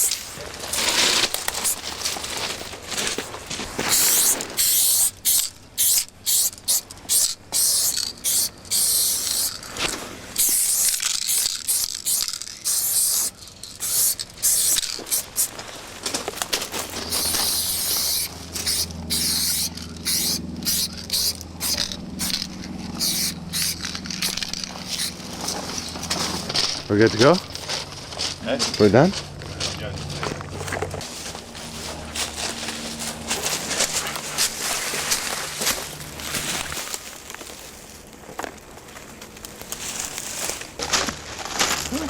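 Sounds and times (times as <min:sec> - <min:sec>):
spray-paint cans hissing: 0:00.0 - 0:03.2, 0:03.8 - 0:15.6, 0:16.8 - 0:26.9
low steady hum: 0:00.0 - 0:42.0.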